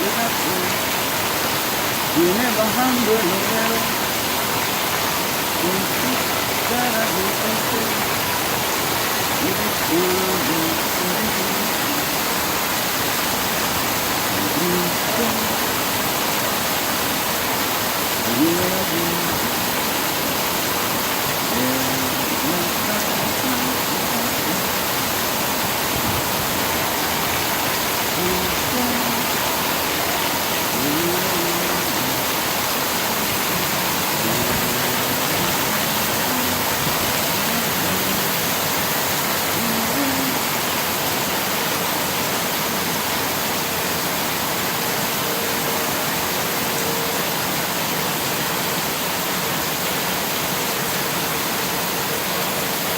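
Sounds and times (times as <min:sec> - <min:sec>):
heavy rain falling: 0:00.0 - 0:52.9.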